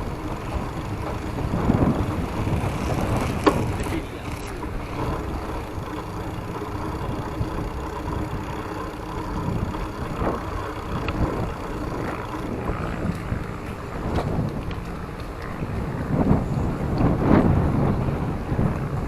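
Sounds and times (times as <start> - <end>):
wind rumble on microphone: 0.0 - 19.0
light ticks: 10.2 - 15.6.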